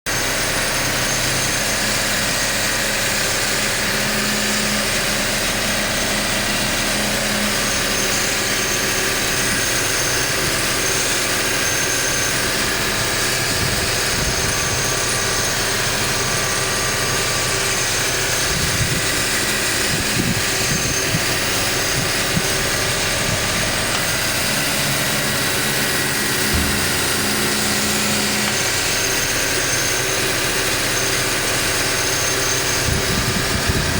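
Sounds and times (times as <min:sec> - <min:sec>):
car engine idling: 0:00.1 - 0:33.9
low thumps: 0:21.9 - 0:28.9.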